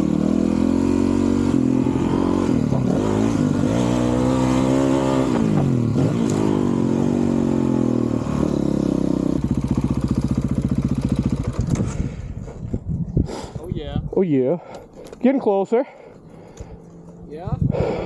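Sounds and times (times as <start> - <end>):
motorcycle engine revving hard: 0.0 - 12.3.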